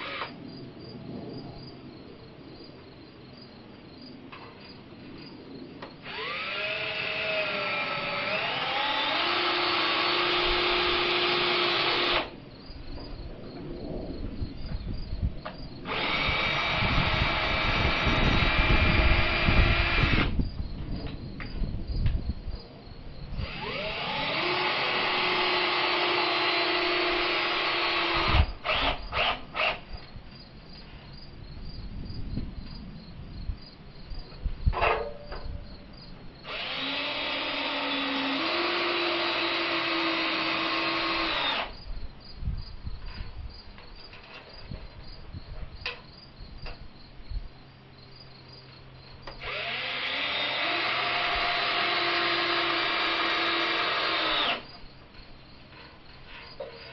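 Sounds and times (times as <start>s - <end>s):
power drill whining: 0.0s - 0.3s, 6.0s - 12.4s, 15.9s - 20.4s, 23.4s - 29.8s, 36.4s - 41.8s, 49.2s - 54.7s
crickets chirping: 0.0s - 56.9s.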